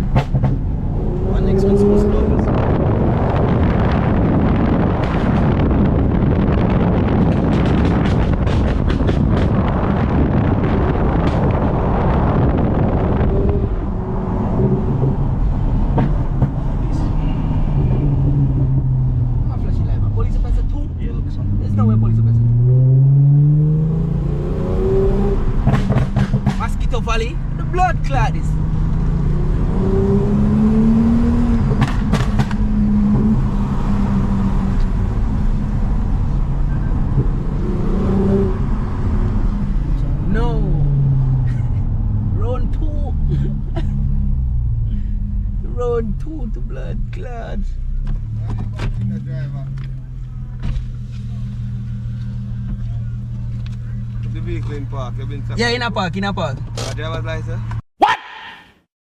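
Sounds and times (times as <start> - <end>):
wind noise: 0.0 - 47.1
car engine drone: 0.0 - 57.8
road noise: 0.0 - 57.9.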